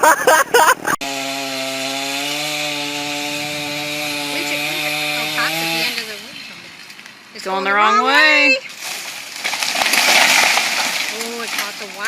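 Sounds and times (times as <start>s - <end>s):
chainsaw cutting at high revs: 0.8s - 6.4s.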